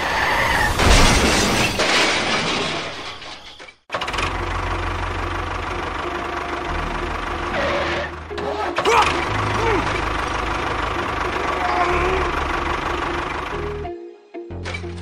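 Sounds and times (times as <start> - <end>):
engine idling: 3.9 - 13.9.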